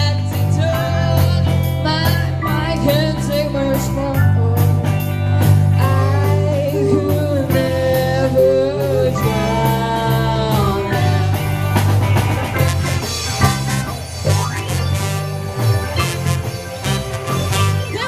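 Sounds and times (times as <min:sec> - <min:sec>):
rock band playing: 0:00.0 - 0:18.0
singer holding long notes: 0:05.8 - 0:12.0.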